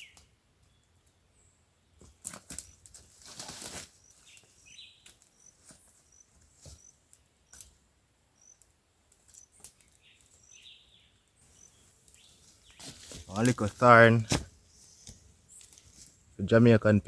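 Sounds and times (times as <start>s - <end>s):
small bird chirping: 0.0s - 3.0s, 3.9s - 13.3s
dry brush rustling and snapping: 2.0s - 7.8s, 9.1s - 10.7s, 11.4s - 16.3s.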